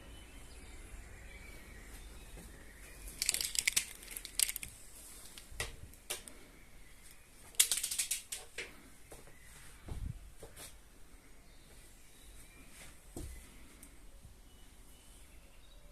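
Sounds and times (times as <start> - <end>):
rustling: 3.0 - 6.4.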